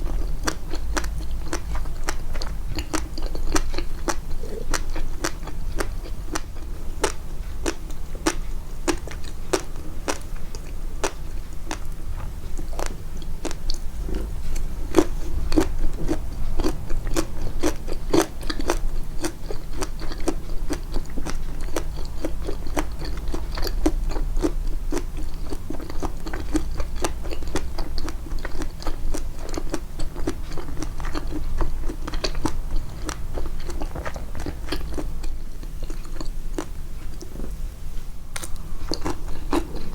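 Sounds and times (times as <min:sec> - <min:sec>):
close-up chewing: 0:00.0 - 0:37.6, 0:38.3 - 0:39.9.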